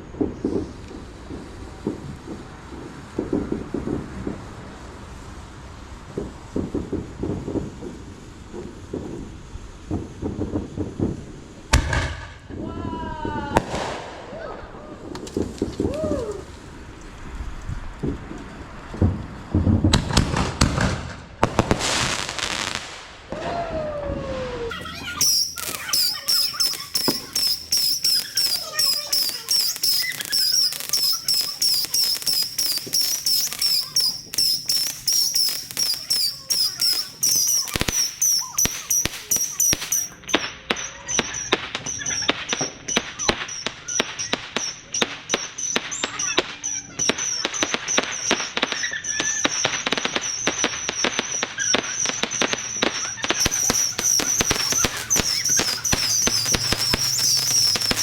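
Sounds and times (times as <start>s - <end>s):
rapid crackling firework pops: 0.0s - 12.6s, 13.2s - 23.6s, 24.7s - 58.0s
falling firework whistle: 0.0s - 58.0s
firework bangs: 0.0s - 58.0s
steady high whistle: 25.2s - 40.5s, 52.3s - 58.0s.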